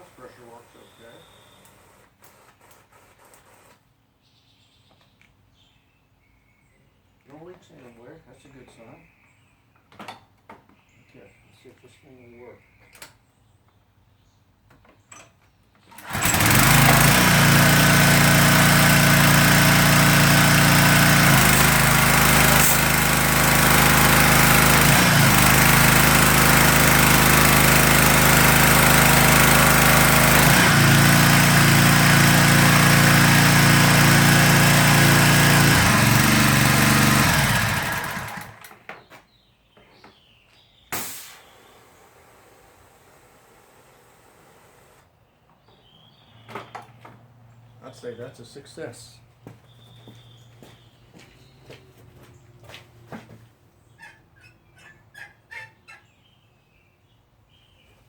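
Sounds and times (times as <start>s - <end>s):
pressure washer engine running: 15.9s - 38.8s, 41.0s - 45.0s
hiss of spray: 41.0s - 41.7s.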